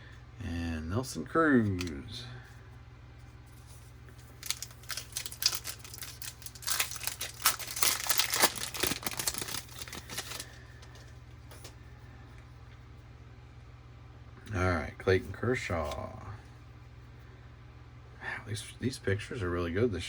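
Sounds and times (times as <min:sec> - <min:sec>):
steady low hum: 0:00.0 - 0:20.0
foil wrapper tearing and crinkling: 0:04.2 - 0:11.7.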